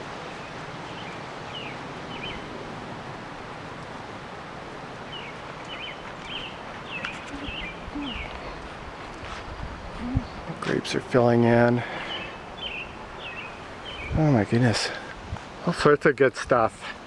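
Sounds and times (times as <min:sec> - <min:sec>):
outdoor rustling: 0:00.0 - 0:17.0
high bird chirps: 0:05.1 - 0:08.4.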